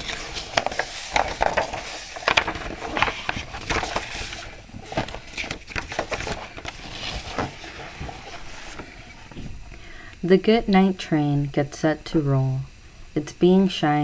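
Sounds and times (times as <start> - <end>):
handling rustles and knocks: 0.0 - 9.7.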